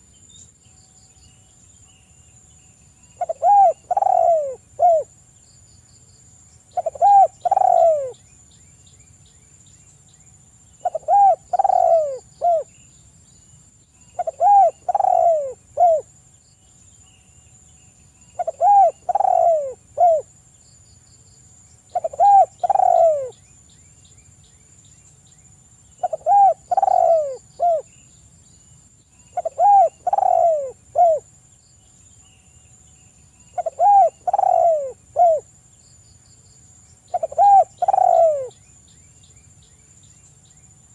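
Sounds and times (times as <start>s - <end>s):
dove cooing: 3.2s - 5.1s, 6.7s - 8.2s, 10.8s - 12.7s, 14.2s - 16.1s, 18.4s - 20.3s, 21.9s - 23.4s, 26.0s - 27.9s, 29.4s - 31.3s, 33.5s - 35.5s, 37.1s - 38.5s.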